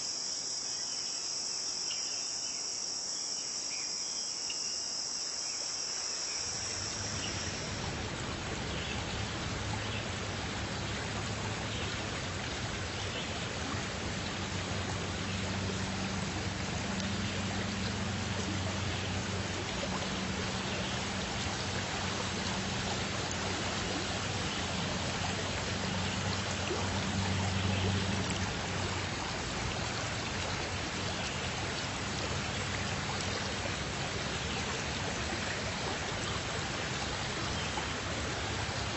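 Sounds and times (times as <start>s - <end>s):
flowing water: 0.0s - 38.9s.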